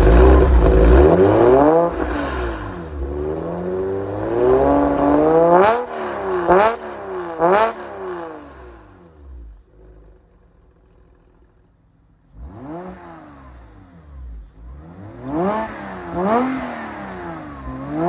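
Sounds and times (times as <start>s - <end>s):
car engine revving: 0.0s - 10.1s, 12.3s - 18.0s.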